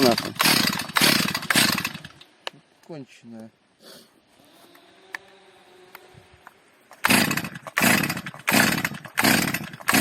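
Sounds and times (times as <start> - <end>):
chainsaw revving: 0.0 - 2.2, 6.9 - 10.0.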